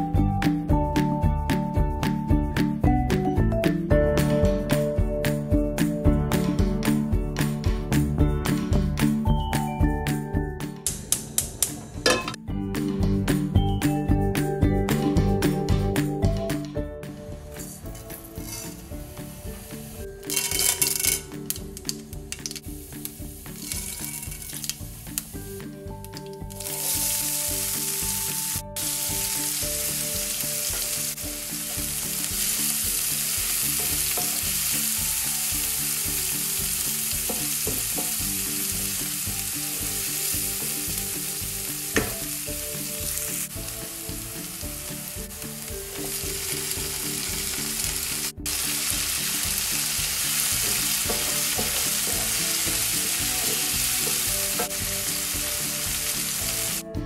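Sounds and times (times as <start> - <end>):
vegetables sizzling in oil: 17.6 - 56.8.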